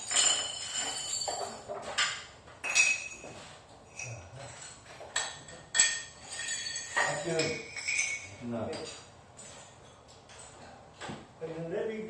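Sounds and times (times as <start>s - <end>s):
ceramic tile pieces clinking: 0.0s - 3.3s, 3.9s - 9.0s.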